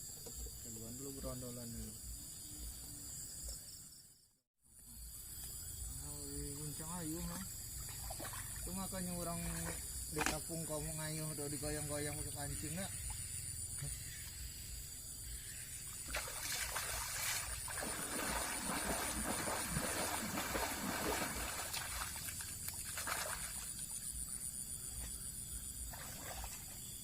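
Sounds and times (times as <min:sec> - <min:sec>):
water splashing and sloshing: 0:07.0 - 0:10.8, 0:15.7 - 0:24.2, 0:25.8 - 0:27.0.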